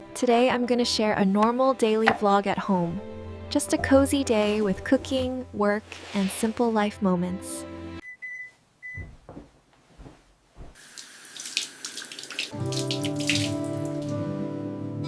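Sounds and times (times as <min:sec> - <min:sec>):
gentle music: 0:00.0 - 0:08.0, 0:12.4 - 0:15.0
soft knocks: 0:09.0 - 0:10.8
tap water running into sink: 0:10.8 - 0:14.2.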